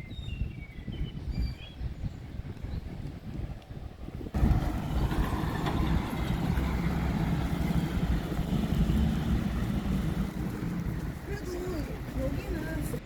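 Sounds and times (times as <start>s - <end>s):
vehicle engine rumbling: 4.3s - 13.0s.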